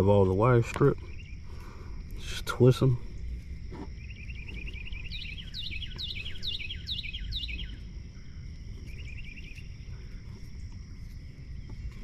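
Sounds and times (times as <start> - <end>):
bird chirping trill: 0.0 - 1.8, 4.0 - 12.0
low background rumble: 0.0 - 12.0
bird whistling downward notes: 4.0 - 7.9.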